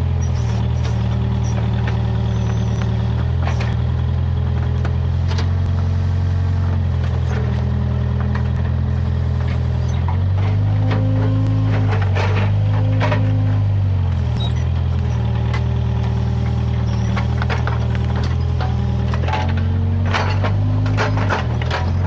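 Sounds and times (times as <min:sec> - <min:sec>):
diesel engine running at low revs: 0:00.0 - 0:22.0.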